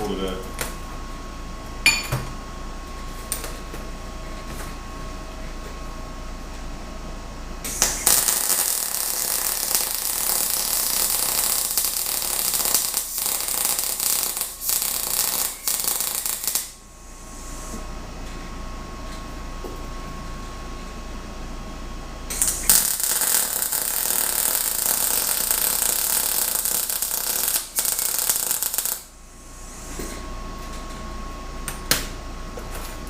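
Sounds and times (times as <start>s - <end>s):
welding arc crackling: 7.7s - 16.8s, 22.3s - 29.2s.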